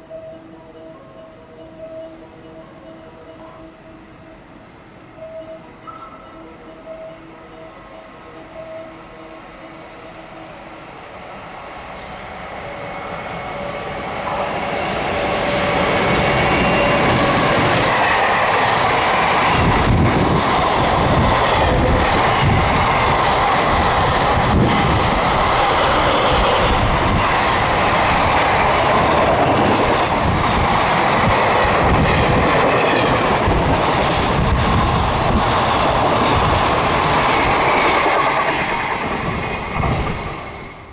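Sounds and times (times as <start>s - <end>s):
freight train passing: 0.0s - 40.9s
wheels clickety-clack: 16.4s - 40.5s.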